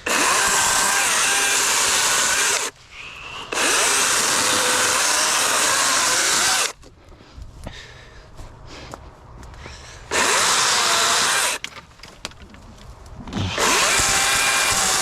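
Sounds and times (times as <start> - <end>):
battery chainsaw cutting wood: 0.0 - 2.7, 3.5 - 6.8, 10.1 - 11.7, 13.3 - 15.0.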